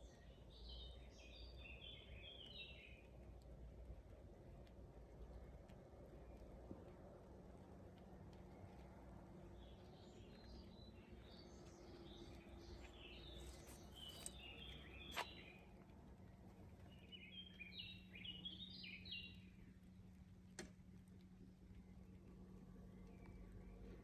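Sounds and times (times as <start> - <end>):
songbird chirping: 0.0 - 3.2, 9.4 - 20.1.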